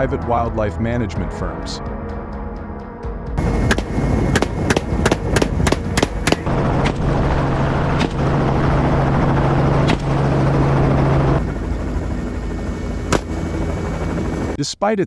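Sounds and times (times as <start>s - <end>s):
helicopter running: 3.4s - 14.6s
rifle shots: 13.1s - 13.7s.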